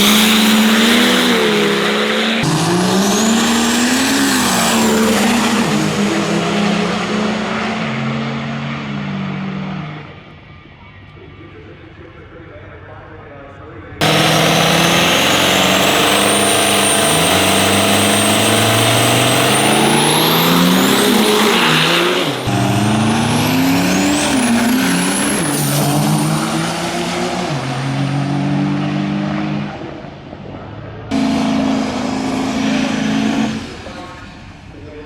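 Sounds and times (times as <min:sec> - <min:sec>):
diesel truck engine at full throttle: 0:00.0 - 0:10.7, 0:14.0 - 0:35.0
high turbo whistle: 0:14.0 - 0:27.0.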